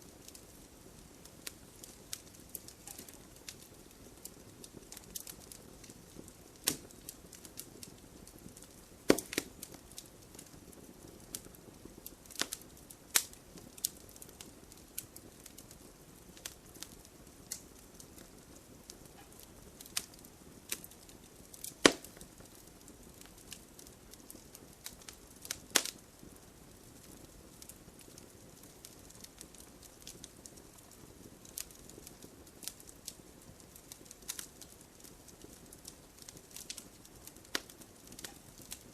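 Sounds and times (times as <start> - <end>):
wood fire crackling and snapping: 0.0 - 38.9.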